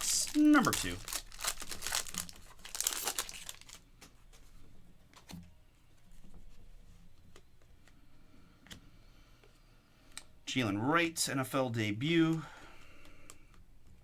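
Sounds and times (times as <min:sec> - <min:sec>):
foil wrappers crinkling and tearing: 0:00.0 - 0:03.9.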